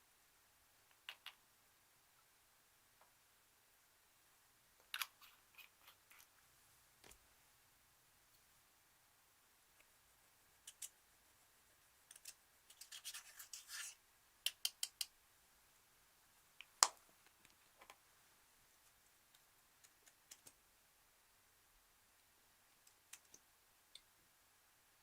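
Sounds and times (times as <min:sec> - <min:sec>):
scratchy crackle: 0:12.1 - 0:14.0.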